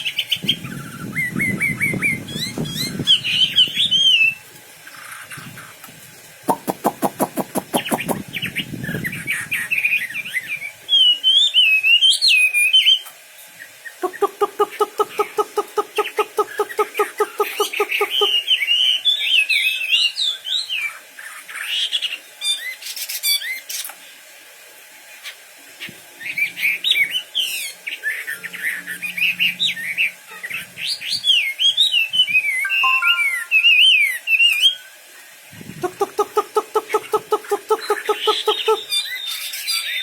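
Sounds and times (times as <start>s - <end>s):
rapid pulsed bird chatter: 6.5s - 8.8s, 14.0s - 18.6s, 35.8s - 39.5s
songbird whistled singing: 6.5s - 13.0s, 26.2s - 34.9s, 37.8s - 40.0s.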